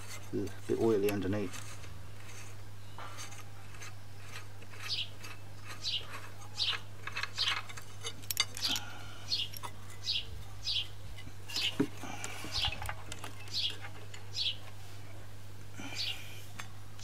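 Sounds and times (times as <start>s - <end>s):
small bird chirping: 4.2s - 7.8s, 8.6s - 11.8s, 12.5s - 14.6s, 15.9s - 16.3s.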